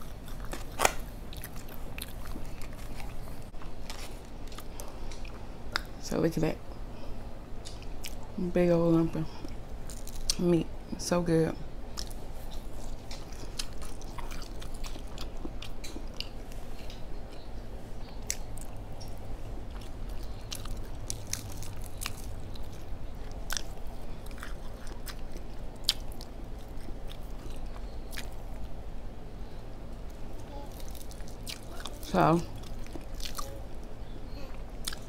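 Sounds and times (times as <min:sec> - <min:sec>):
person chewing fried fish: 0:00.0 - 0:05.9, 0:11.9 - 0:28.8, 0:30.0 - 0:34.0, 0:34.8 - 0:35.0
steady low hum: 0:00.0 - 0:35.0.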